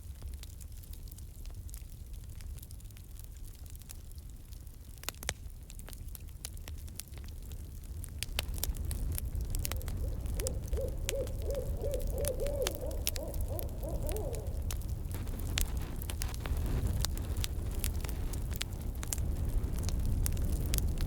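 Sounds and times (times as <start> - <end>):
campfire crackling and popping: 0.2 - 21.0
owl hooting rapidly: 9.4 - 15.0.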